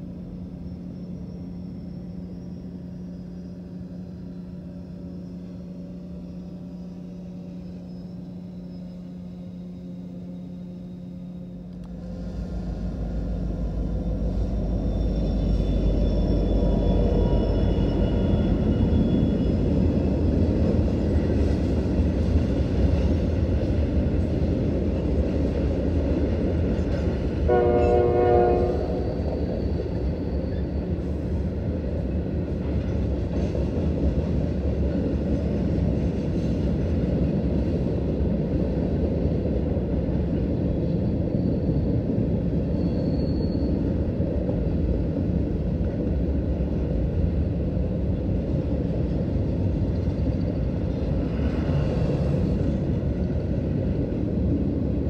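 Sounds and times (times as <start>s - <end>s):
train wheels rumbling on rail: 0.0s - 55.0s
locomotive chime horn blast: 27.5s - 29.5s.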